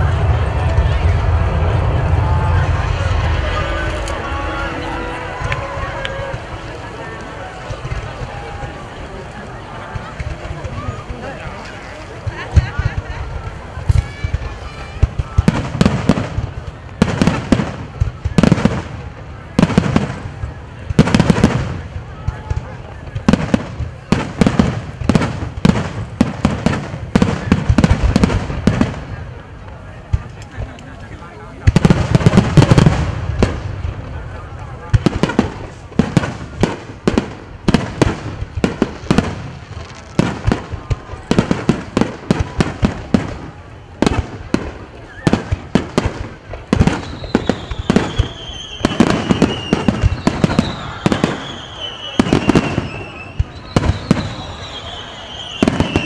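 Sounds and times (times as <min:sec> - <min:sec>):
fireworks bangs: 0:00.0 - 0:56.0
low rumble of explosions: 0:00.0 - 0:56.0
falling firework whistle: 0:46.8 - 0:56.0.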